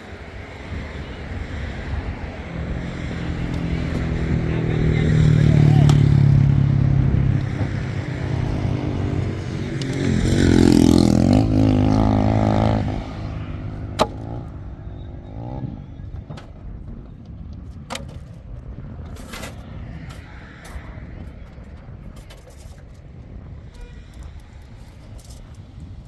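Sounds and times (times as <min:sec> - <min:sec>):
vehicle engine revving: 0:02.4 - 0:16.2.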